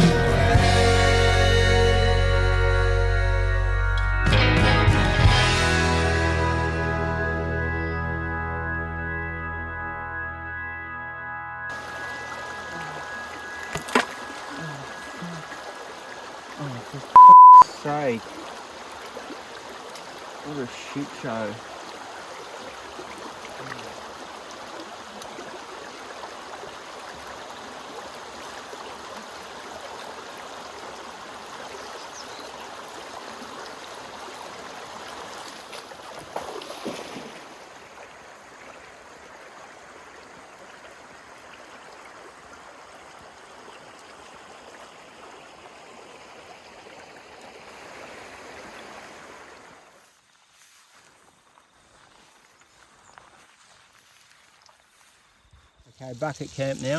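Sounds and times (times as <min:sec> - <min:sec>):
shallow creek running water: 0:11.7 - 0:56.9.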